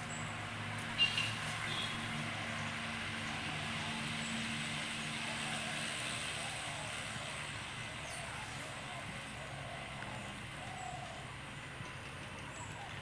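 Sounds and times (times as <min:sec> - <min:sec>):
road noise hiss: 0:00.0 - 0:13.0
vehicle engine hum: 0:00.0 - 0:13.0.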